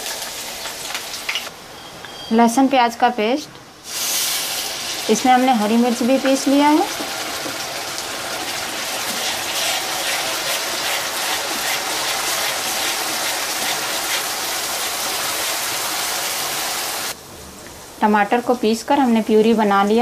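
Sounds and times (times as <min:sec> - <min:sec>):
paste sizzling in hot oil: 0:03.8 - 0:17.2
wooden spatula scraping pan: 0:09.0 - 0:15.6.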